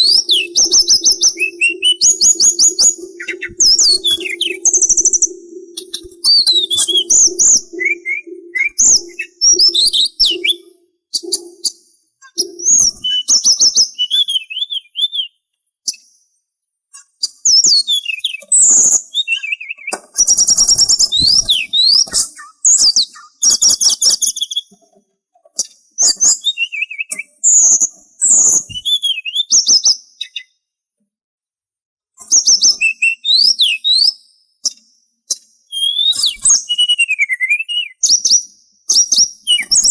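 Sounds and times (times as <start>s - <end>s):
songbird chirps and trills: 0.0s - 15.2s, 17.2s - 25.0s, 34.6s - 39.9s
low pulsing note: 0.4s - 10.7s.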